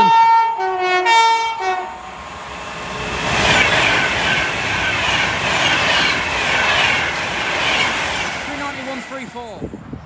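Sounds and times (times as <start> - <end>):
train horn: 0.0 - 2.1
train passing at speed: 0.7 - 10.0.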